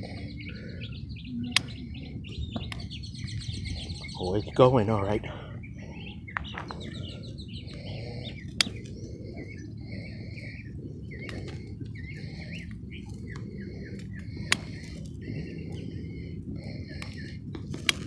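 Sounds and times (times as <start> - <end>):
low outdoor rumble: 0.0 - 18.0
small birds chirping: 0.0 - 18.0
sharp clicks: 1.5 - 3.5, 6.3 - 16.0.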